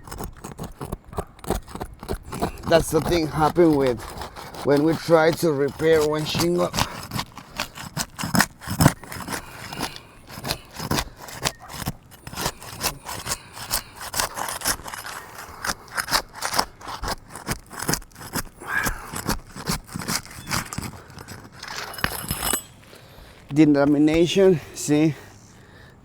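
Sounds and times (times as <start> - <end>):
roof shingle scraping and crackling: 0.0 - 25.9.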